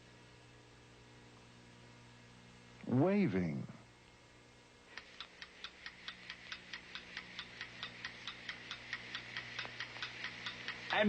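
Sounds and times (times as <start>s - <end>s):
faint hum: 0.0s - 11.0s
clock ticking: 5.0s - 11.0s.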